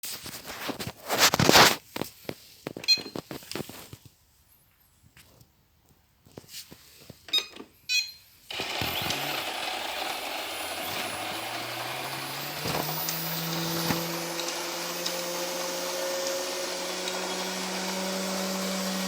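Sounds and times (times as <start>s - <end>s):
short beeps: 7.3s - 8.3s
robot vacuum motor hum: 8.5s - 19.0s.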